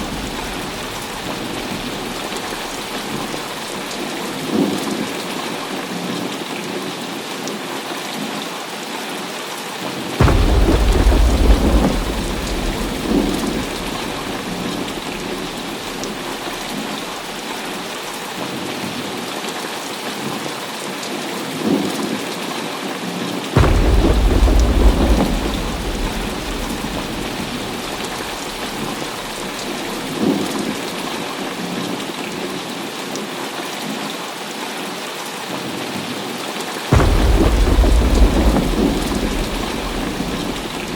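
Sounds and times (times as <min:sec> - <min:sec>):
thunder claps and rumbles: 0:00.0 - 0:06.0, 0:10.2 - 0:18.1, 0:23.6 - 0:31.8, 0:36.9 - 0:40.9
heavy rain: 0:00.0 - 0:40.9.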